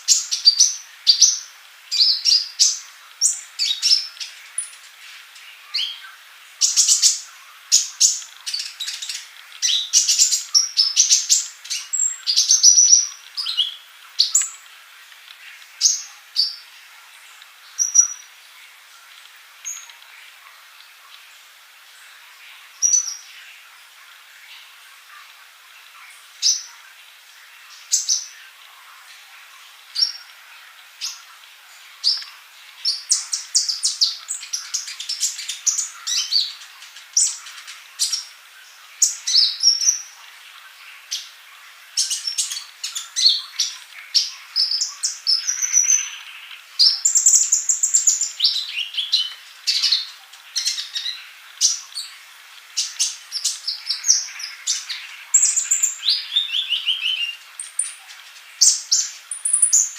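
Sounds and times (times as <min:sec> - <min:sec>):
sunbird singing high chirps: 0:00.0 - 0:14.6, 0:17.6 - 0:18.4, 0:22.0 - 0:23.6, 0:32.0 - 0:40.2, 0:42.0 - 0:52.2, 0:52.8 - 0:59.9.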